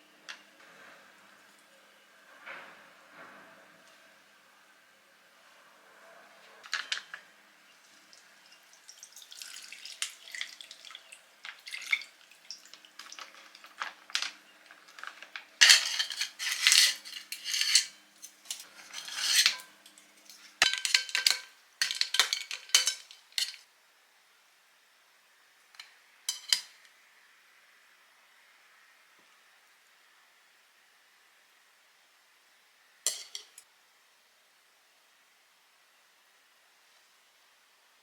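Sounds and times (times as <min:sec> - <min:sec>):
utensils clinking on dishes: 0:15.6 - 0:23.7, 0:26.3 - 0:26.8, 0:33.1 - 0:33.6.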